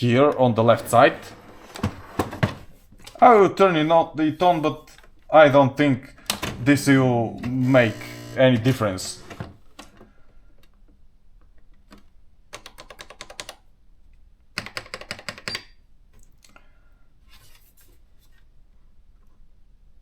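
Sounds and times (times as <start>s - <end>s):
typewriter keys clicking: 12.6s - 13.6s, 14.6s - 15.6s.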